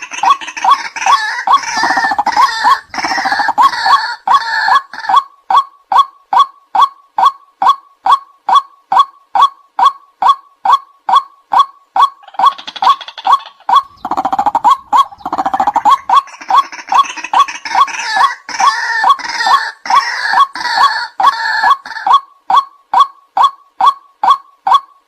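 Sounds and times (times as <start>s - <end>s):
chorus of croaking bird calls: 0.0s - 25.0s
bird sharp kwak calls: 5.0s - 25.0s.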